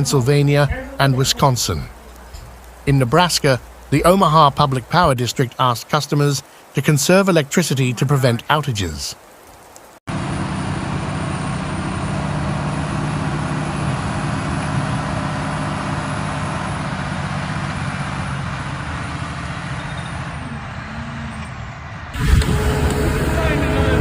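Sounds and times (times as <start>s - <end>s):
vehicle engine hum: 0.0s - 5.3s, 10.1s - 24.0s
road and wind noise: 0.0s - 6.8s, 9.2s - 24.0s.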